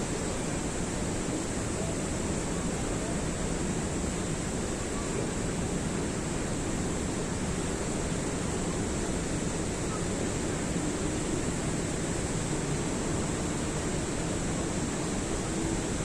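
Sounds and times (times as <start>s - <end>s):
flowing water rushing: 0.0s - 16.0s.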